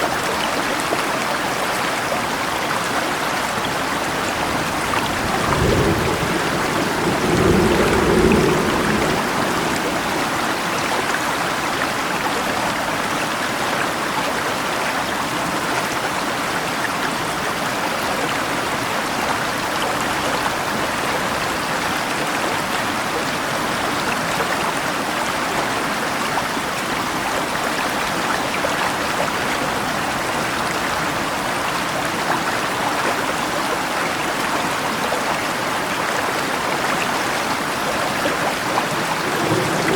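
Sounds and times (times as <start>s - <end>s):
falling rain: 0.0s - 14.1s, 15.9s - 39.9s
river stream rushing: 0.0s - 39.9s
distant thunder rumble: 4.0s - 11.2s, 37.7s - 39.9s.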